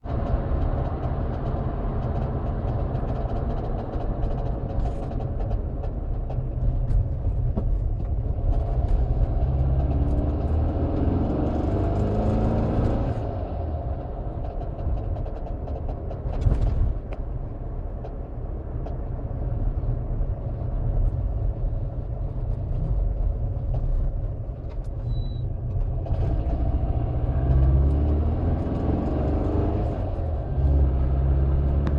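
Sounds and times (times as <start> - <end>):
car engine revving: 8.2 - 13.6, 25.8 - 31.9.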